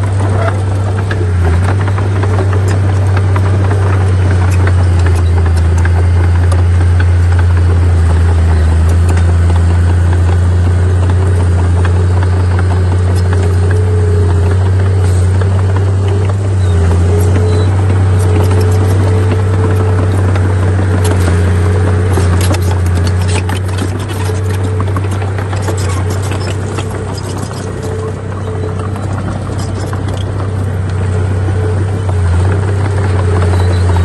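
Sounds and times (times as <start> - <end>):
heavy diesel machinery engine: 0.0 - 34.0
metallic clanks and clicks: 11.0 - 34.0.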